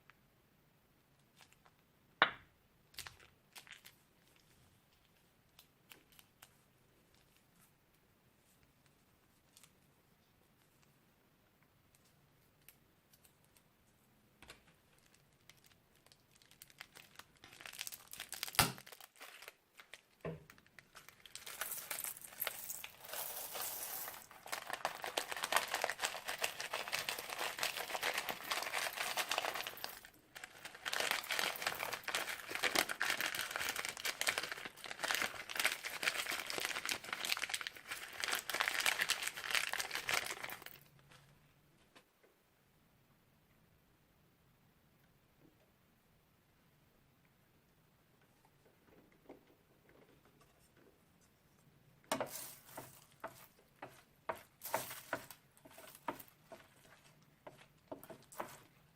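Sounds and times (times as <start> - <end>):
slime crackling in plastic bag: 2.9 - 7.5, 14.7 - 41.0, 52.2 - 58.9.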